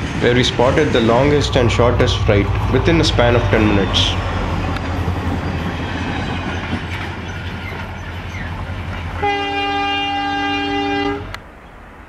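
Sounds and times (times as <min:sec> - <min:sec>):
freight train running: 0:00.0 - 0:12.0
locomotive chord horn: 0:00.9 - 0:04.5, 0:09.2 - 0:11.4.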